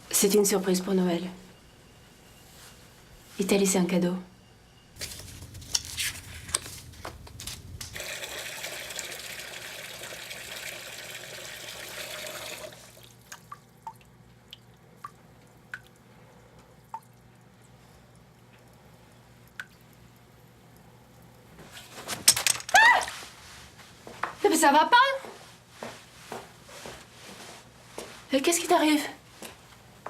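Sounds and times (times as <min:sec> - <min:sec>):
water running from a tap: 0:08.0 - 0:14.0
water drops falling: 0:13.2 - 0:16.0.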